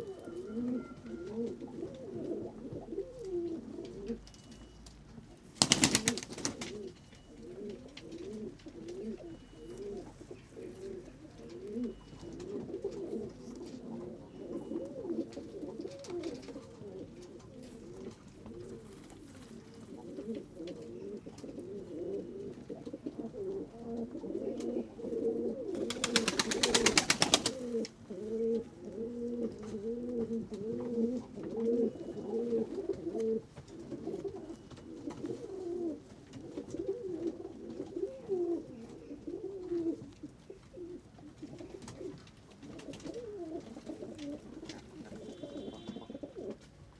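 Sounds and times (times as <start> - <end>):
pigeons cooing: 0.0 - 4.3, 5.6 - 46.7
wings flapping: 5.6 - 6.9, 25.8 - 27.8.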